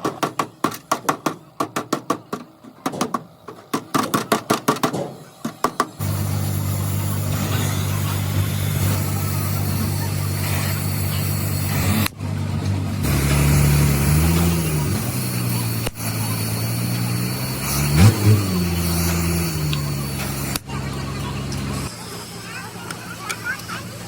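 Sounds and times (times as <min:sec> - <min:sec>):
vehicle engine revving: 0:06.0 - 0:21.9.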